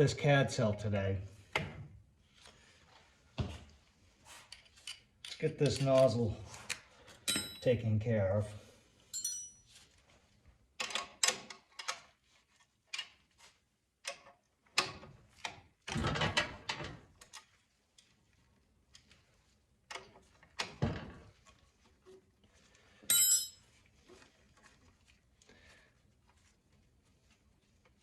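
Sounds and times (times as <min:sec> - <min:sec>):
metal tools clicking and knocking: 0:04.6 - 0:06.1, 0:07.3 - 0:07.7, 0:09.2 - 0:09.6, 0:23.1 - 0:23.6.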